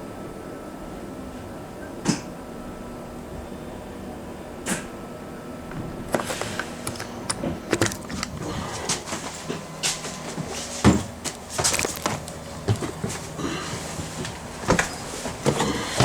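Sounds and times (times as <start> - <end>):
rattles and knocks of fittings: 6.1 - 9.2.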